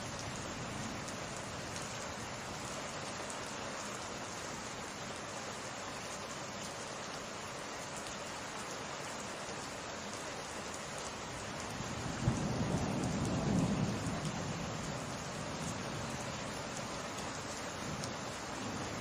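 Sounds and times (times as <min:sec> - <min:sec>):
rain hissing: 0:00.0 - 0:19.0
thunder rumble with sharp crack: 0:12.0 - 0:16.2.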